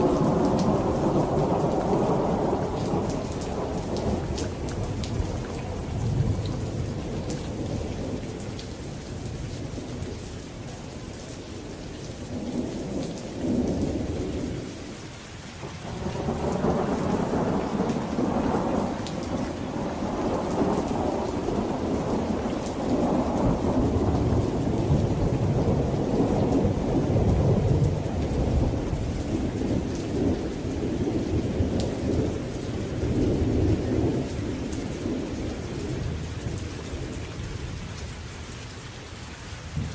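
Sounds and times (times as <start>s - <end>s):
rolling thunder: 0.0s - 8.4s, 15.7s - 37.8s, 39.7s - 39.9s
steady rain: 0.0s - 39.9s.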